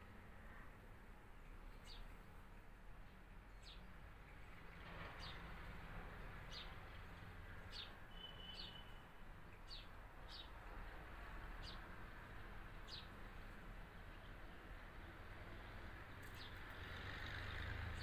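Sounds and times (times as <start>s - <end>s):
small bird chirping: 7.7s - 9.0s.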